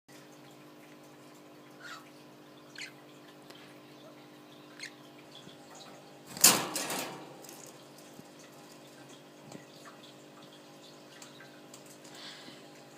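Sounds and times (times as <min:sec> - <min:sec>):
budgie chirping: 0:02.7 - 0:03.0.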